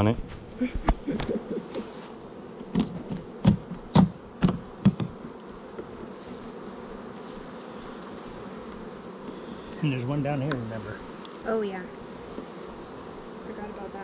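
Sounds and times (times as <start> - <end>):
honeybees buzzing: 0.0 - 14.0
sharp knocks: 2.7 - 5.2.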